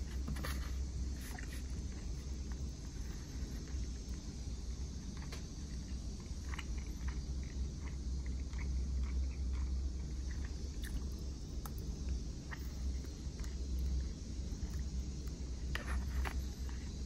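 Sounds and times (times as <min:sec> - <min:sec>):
steady low hum: 0:00.0 - 0:17.0
person chewing food: 0:04.9 - 0:17.0.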